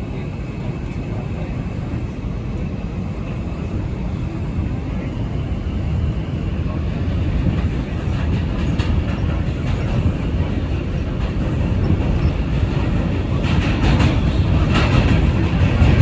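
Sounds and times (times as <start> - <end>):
subway train rumbling: 0.0 - 16.0
wheels clicking over rail joints: 7.4 - 16.0.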